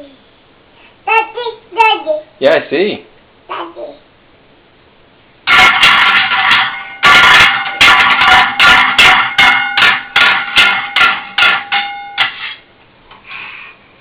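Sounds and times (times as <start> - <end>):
metal whisk clanging: 5.5 - 12.6.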